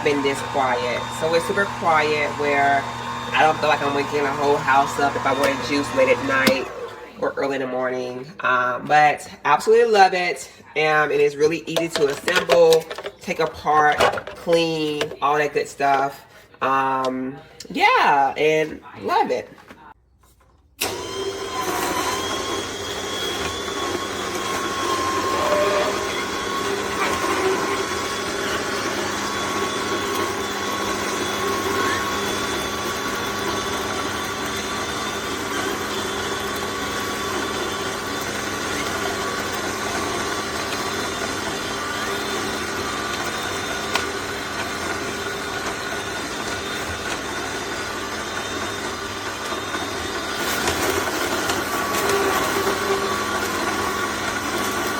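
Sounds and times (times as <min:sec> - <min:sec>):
juicer motor humming and whining: 0:00.0 - 0:07.7, 0:20.8 - 0:54.9.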